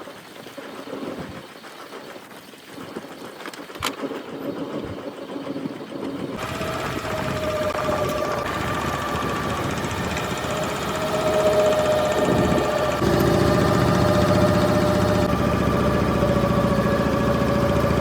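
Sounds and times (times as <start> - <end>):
boat engine running: 6.4 - 18.0
high-pitched whine: 6.4 - 18.0.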